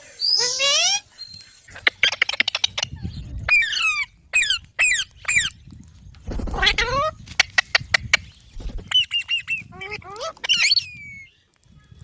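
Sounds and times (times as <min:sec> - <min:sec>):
parrot squawking: 0:06.4 - 0:07.8
parrot screeches: 0:06.5 - 0:07.1.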